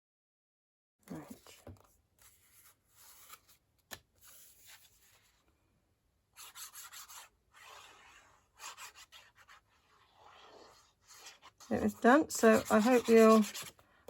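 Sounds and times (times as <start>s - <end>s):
paper card rubbing: 1.3s - 3.6s, 4.2s - 5.4s, 6.4s - 13.8s.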